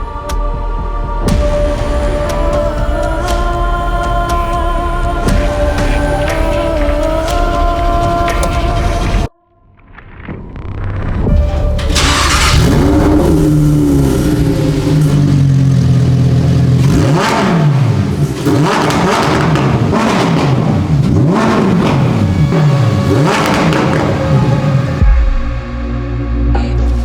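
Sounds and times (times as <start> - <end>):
music: 0.0 - 16.6, 21.3 - 27.0
sports car engine revving: 11.8 - 25.6.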